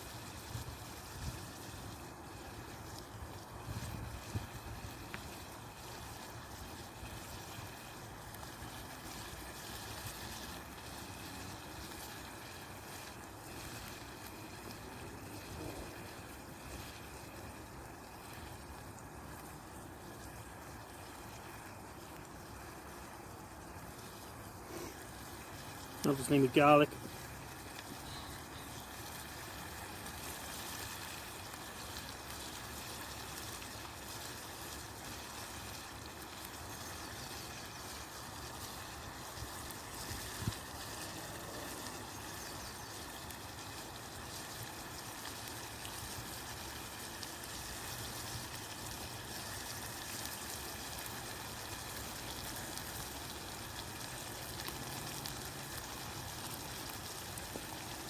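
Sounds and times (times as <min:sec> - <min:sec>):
food sizzling in a pan: 0:24.0 - 0:58.0.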